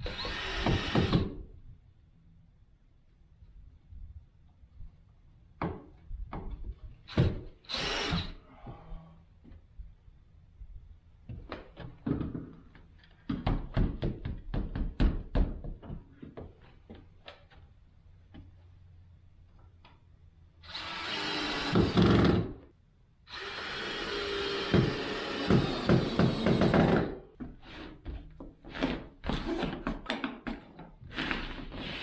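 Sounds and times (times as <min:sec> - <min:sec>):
sharp knocks and taps: 0:11.3 - 0:17.6.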